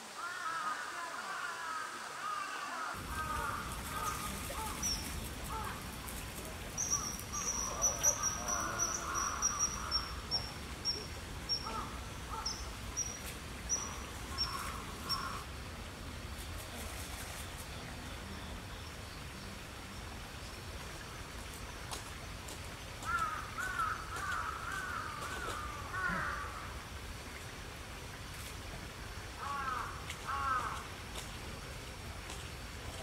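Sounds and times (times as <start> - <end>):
birds chirping: 3.0 - 15.4
harsh bird calls: 6.8 - 15.4.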